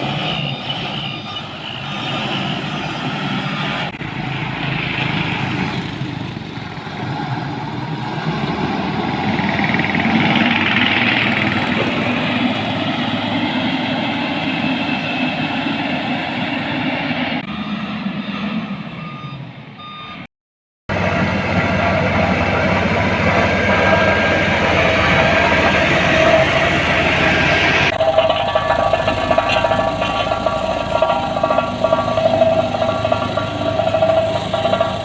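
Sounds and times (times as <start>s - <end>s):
reversing alarm beeping: 0.0s - 3.9s, 17.4s - 20.3s, 23.5s - 29.8s
heavy vehicle engine running: 0.0s - 20.3s, 20.9s - 35.0s.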